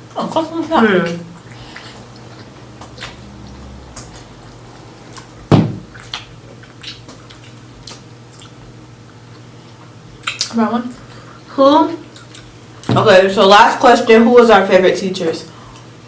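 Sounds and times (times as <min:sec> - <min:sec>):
steady low hum: 0:00.0 - 0:16.0
wet eating clicks and smacks: 0:00.3 - 0:11.1, 0:12.0 - 0:12.6
thump on table: 0:05.5 - 0:05.8.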